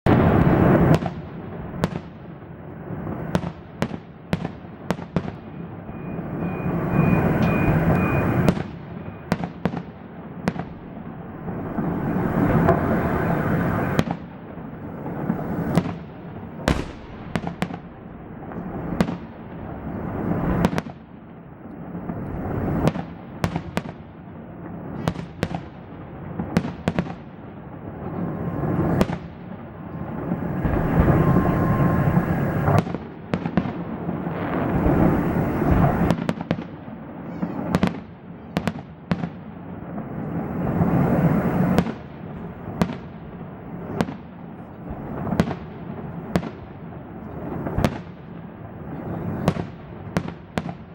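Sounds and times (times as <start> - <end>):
firework bangs: 0.0 - 50.9
rumbling noise: 10.9 - 14.0, 29.9 - 32.9, 34.1 - 36.1.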